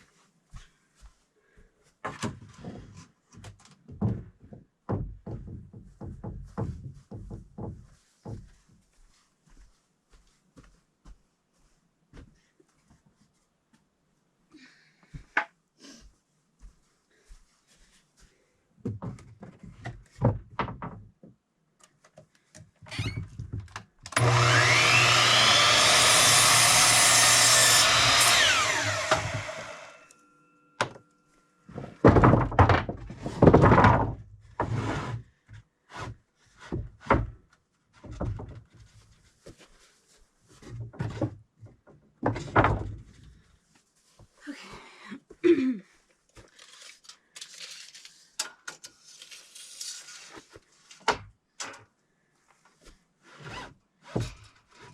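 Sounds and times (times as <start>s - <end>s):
wooden boards knocking: 3.9s - 8.4s
electric saw cutting board: 24.2s - 30.1s.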